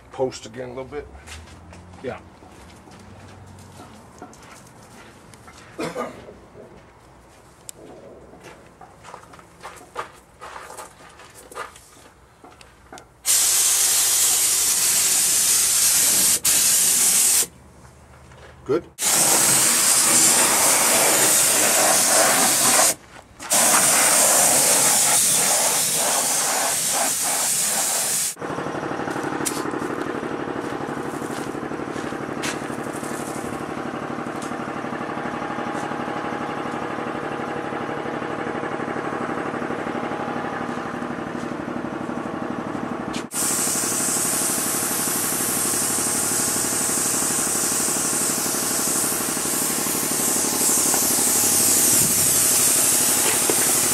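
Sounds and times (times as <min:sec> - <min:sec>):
spray gun hissing: 0:13.3 - 0:17.5, 0:19.0 - 0:28.4, 0:43.3 - 0:53.9.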